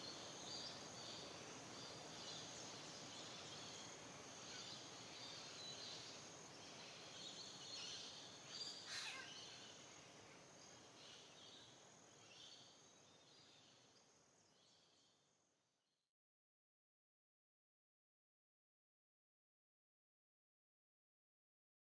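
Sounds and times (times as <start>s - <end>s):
small birds chirping: 0.0s - 15.0s
soft background hiss: 0.0s - 15.6s.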